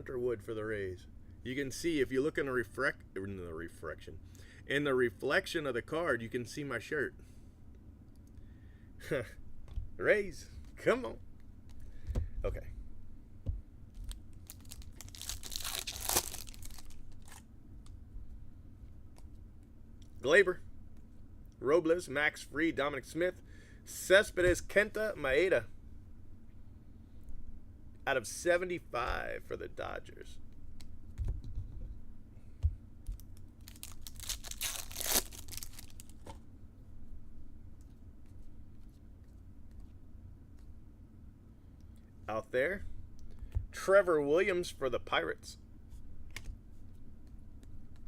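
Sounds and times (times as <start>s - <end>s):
cards rustling and clicking: 13.9s - 18.0s, 33.1s - 36.4s
foil wrapper tearing and crinkling: 14.0s - 17.4s, 33.6s - 36.2s.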